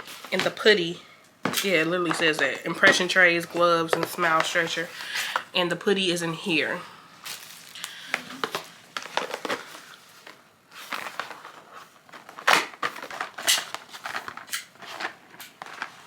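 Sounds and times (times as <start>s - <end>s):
packaging rustling and crinkling: 0.0s - 0.6s, 7.2s - 16.0s
sharp packaging crackle: 7.2s - 16.0s.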